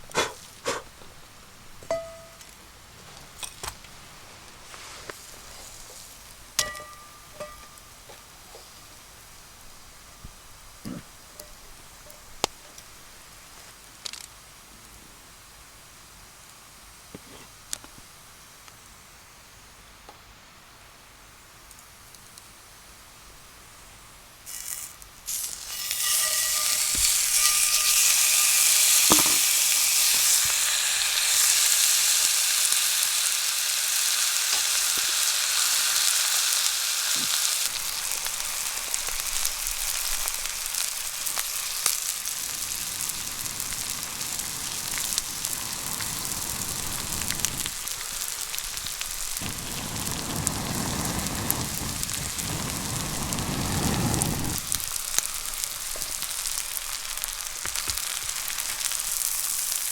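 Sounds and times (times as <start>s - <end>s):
steak sizzling in a hot pan: 4.6s - 14.2s, 24.4s - 59.9s.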